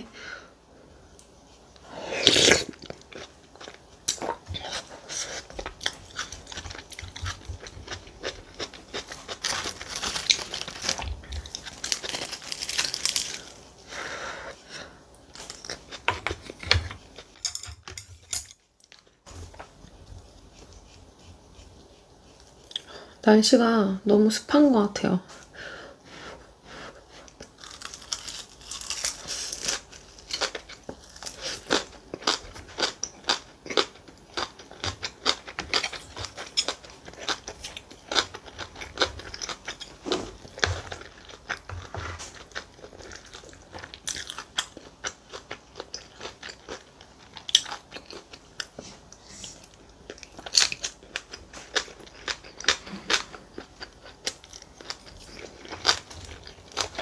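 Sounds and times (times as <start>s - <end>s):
crisp crunching and chewing: 2.2s - 13.7s, 27.2s - 48.8s, 49.6s - 57.0s.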